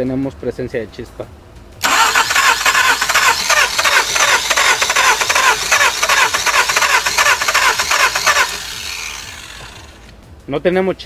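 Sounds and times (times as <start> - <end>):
engine cranking on starter: 1.8 - 10.2.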